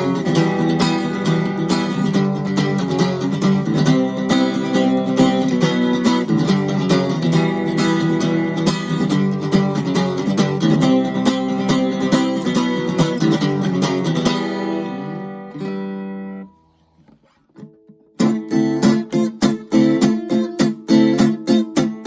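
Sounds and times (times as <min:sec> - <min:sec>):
acoustic guitar strummed chords: 0:00.0 - 0:22.0.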